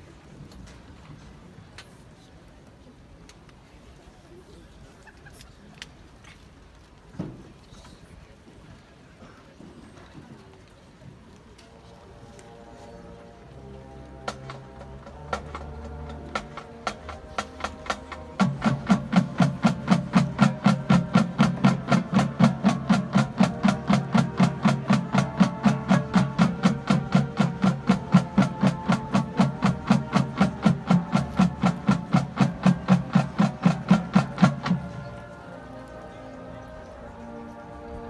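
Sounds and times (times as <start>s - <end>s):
band holding low sustained chord: 12.0s - 38.0s.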